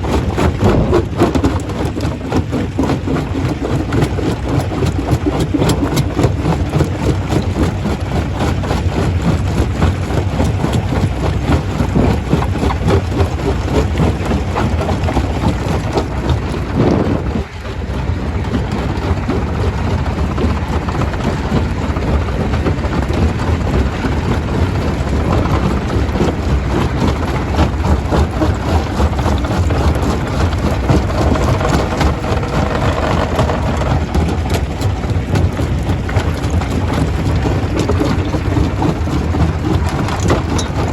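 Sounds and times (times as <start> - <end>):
stone crusher rumbling: 0.0 - 40.9.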